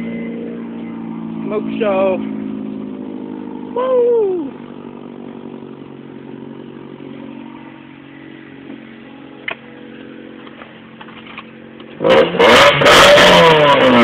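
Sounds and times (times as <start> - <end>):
car engine idling loud exhaust: 0.0 - 13.0
engine revving hard: 12.0 - 14.0.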